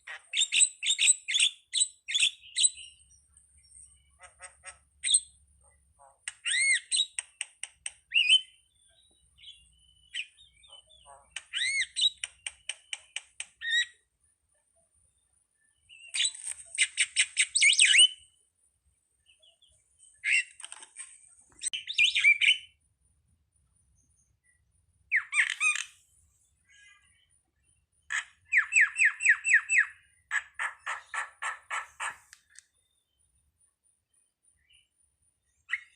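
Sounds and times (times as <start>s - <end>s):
starling chattering song: 9.5s - 13.9s, 28.1s - 32.6s.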